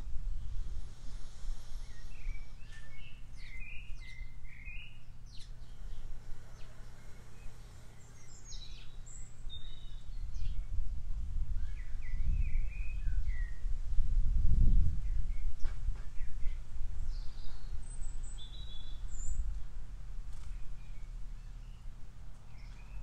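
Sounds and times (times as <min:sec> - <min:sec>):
small birds chirping: 0:00.0 - 0:23.0
steady low rumble: 0:07.4 - 0:23.0.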